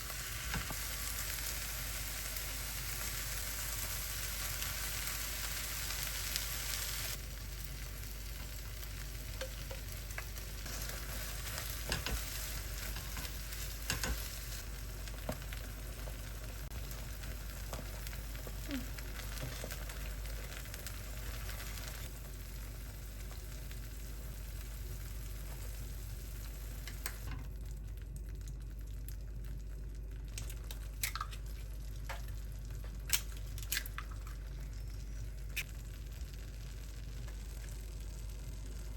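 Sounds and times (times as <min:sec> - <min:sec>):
food sizzling in a frying pan: 0:00.0 - 0:27.6, 0:32.0 - 0:38.9.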